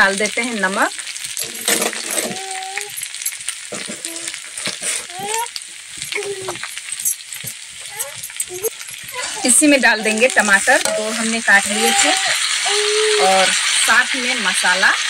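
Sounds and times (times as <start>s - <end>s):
vegetables sizzling in hot oil: 0.0s - 15.0s
spatula scraping a pan: 3.0s - 5.3s.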